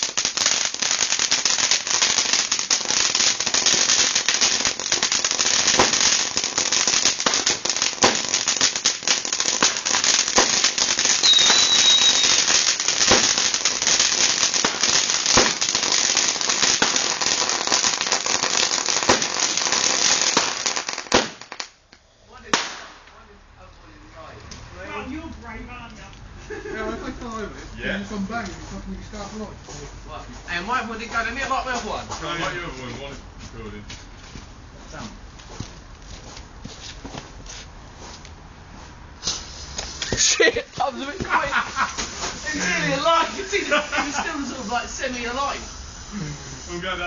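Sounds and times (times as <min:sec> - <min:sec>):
firecracker bangs: 0:00.0 - 0:21.8, 0:22.4 - 0:23.1, 0:39.2 - 0:46.1
firecrackers crackling: 0:00.0 - 0:23.3, 0:23.9 - 0:47.0
high whistle: 0:11.2 - 0:12.5.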